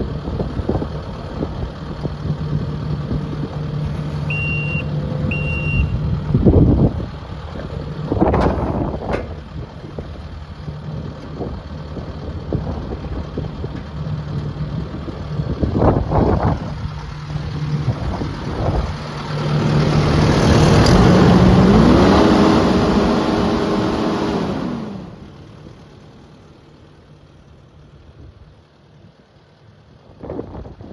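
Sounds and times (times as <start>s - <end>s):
diesel engine running: 0.0s - 30.9s
metal clanks: 7.6s - 10.2s
rising whine: 15.8s - 25.5s.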